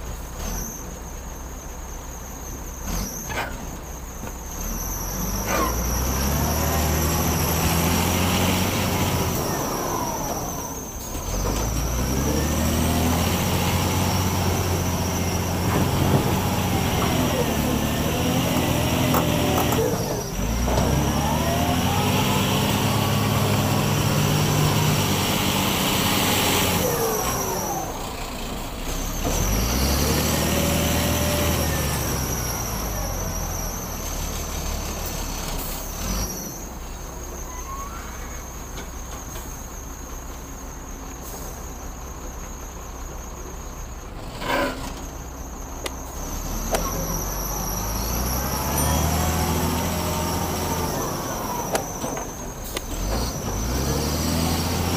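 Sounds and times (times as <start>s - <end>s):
diesel engine revving: 0.0s - 54.9s.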